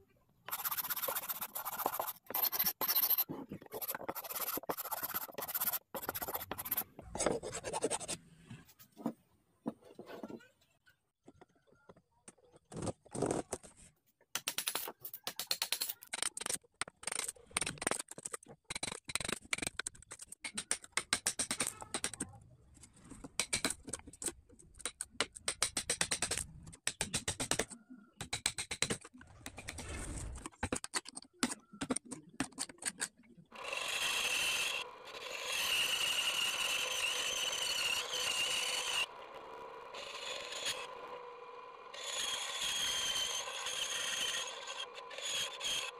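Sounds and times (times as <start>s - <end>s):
chisel cutting wood: 0.5s - 8.2s, 33.5s - 45.9s
scroll saw cutting: 0.5s - 8.2s, 33.5s - 45.9s.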